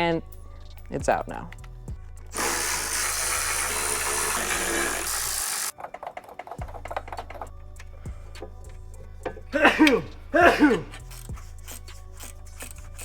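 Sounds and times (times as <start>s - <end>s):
loud steady hiss: 2.4s - 5.7s
metal exhaust parts clanking: 5.8s - 11.3s.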